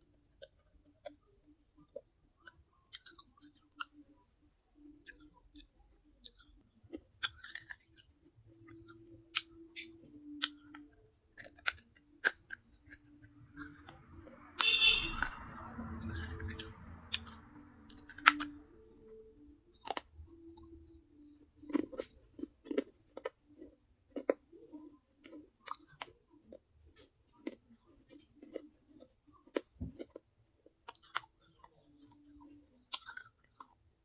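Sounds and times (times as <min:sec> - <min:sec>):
clay pieces crunched by chewing: 0:04.8 - 0:14.4, 0:21.3 - 0:33.8.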